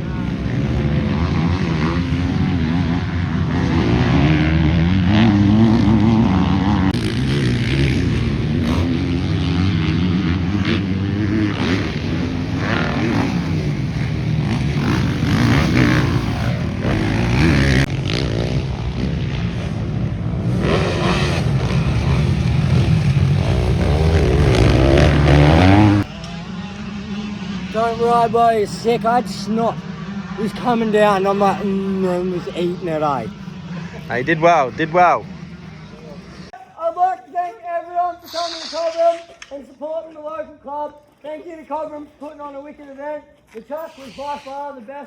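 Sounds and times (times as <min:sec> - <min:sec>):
dirt bike engine revving: 0:00.0 - 0:36.6.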